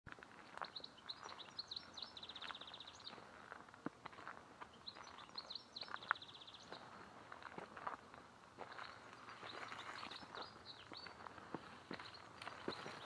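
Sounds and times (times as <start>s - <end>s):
songbird singing with trills: 0.6s - 3.2s, 4.7s - 7.0s, 8.7s - 11.2s, 12.0s - 13.0s.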